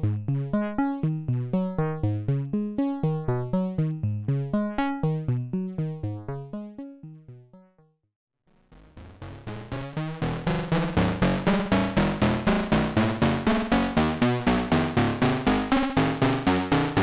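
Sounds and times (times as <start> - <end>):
synthesizer plucked note sequence: 3.8 - 7.9, 8.7 - 17.0.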